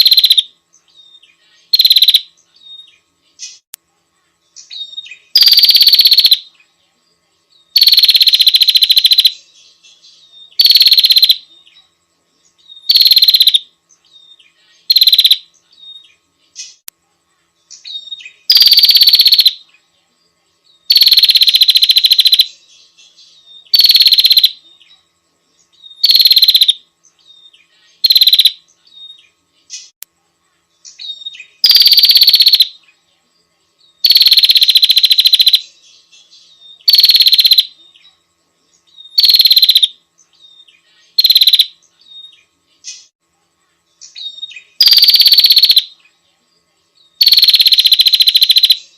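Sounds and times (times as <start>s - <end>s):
bird rapid trills: 0.0s - 0.5s, 1.6s - 2.3s, 4.6s - 6.5s, 7.7s - 9.5s, 10.4s - 11.4s, 12.8s - 13.7s, 14.8s - 15.5s, 17.8s - 19.6s, 20.9s - 22.6s, 23.6s - 24.6s, 25.9s - 26.8s, 28.0s - 28.6s, 30.9s - 32.8s, 34.0s - 35.8s, 36.8s - 37.8s, 39.0s - 40.0s, 41.1s - 41.8s, 44.1s - 45.9s, 47.2s - 48.9s.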